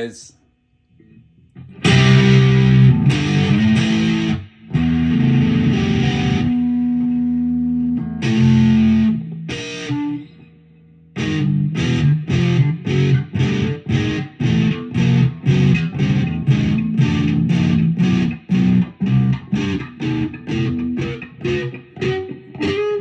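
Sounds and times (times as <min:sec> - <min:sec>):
distorted electric guitar chords: 0:01.6 - 0:10.5, 0:11.2 - 0:23.0.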